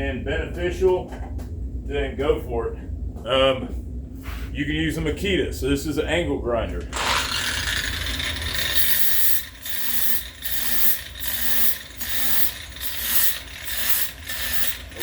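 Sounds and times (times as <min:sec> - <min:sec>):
angle grinder sanding wood: 0:06.9 - 0:15.0.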